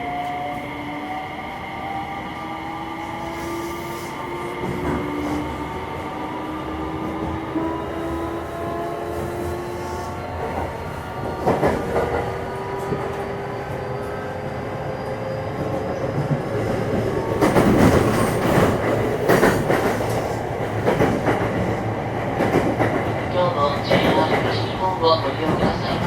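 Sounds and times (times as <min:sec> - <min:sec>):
train running rumble: 0:15.6 - 0:26.0.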